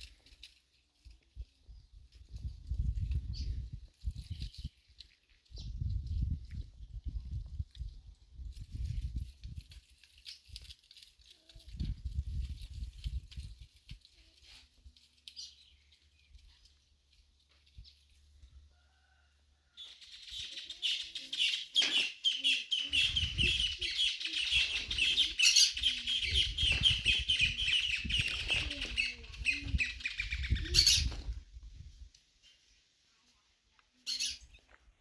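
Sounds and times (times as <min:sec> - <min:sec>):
bird chattering: 0:20.1 - 0:31.1.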